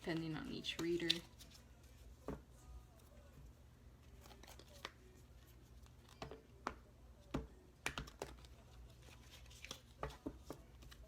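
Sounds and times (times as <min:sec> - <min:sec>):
cards being shuffled: 0:00.0 - 0:02.0, 0:04.0 - 0:06.8, 0:07.8 - 0:11.0.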